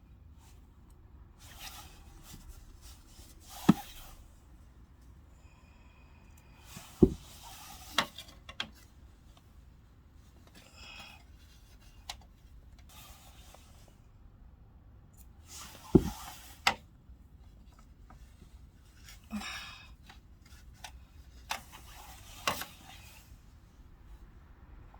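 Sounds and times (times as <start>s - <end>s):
rustling and rubbing: 1.4s - 4.7s, 6.7s - 10.4s, 15.5s - 16.8s, 20.1s - 24.3s
sharp knocks on air conditioner: 7.0s - 7.4s, 16.0s - 16.8s.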